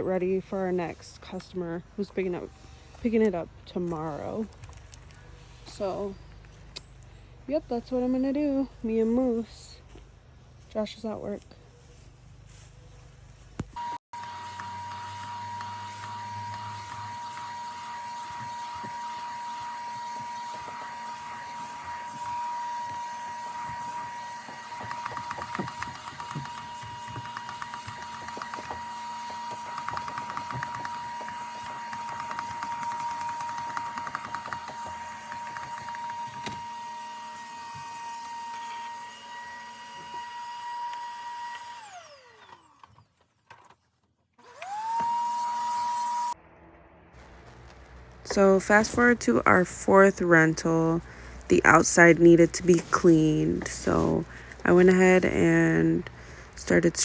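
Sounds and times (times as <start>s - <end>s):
vacuum nozzle scraping: 13.8s - 40.4s, 47.2s - 57.0s
vacuum cleaner motor whining: 13.8s - 43.3s, 44.4s - 46.4s, 47.3s - 57.0s.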